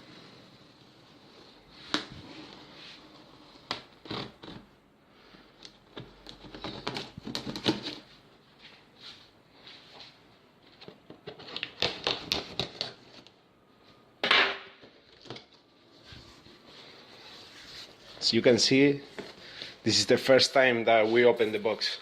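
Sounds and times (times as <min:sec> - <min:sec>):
cardboard rustling and scraping: 0:06.0 - 0:08.1, 0:15.2 - 0:19.6.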